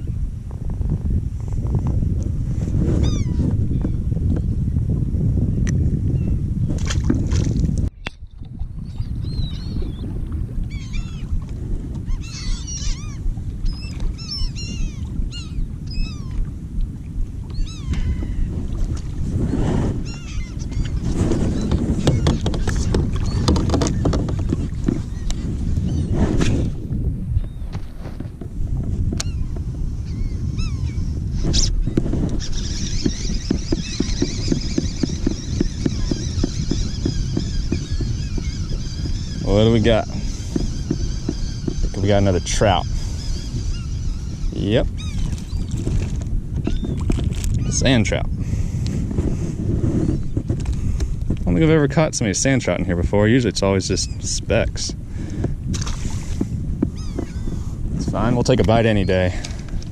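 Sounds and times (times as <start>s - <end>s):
wind on microphone: 0.0s - 59.9s
birds calling: 3.0s - 4.0s, 8.8s - 10.1s, 10.7s - 11.3s, 12.0s - 16.5s, 17.5s - 18.5s, 20.0s - 26.2s, 27.4s - 27.8s, 29.2s - 48.5s, 53.6s - 59.8s
flock of birds calling: 12.1s - 16.3s, 32.4s - 45.7s, 57.0s - 57.7s.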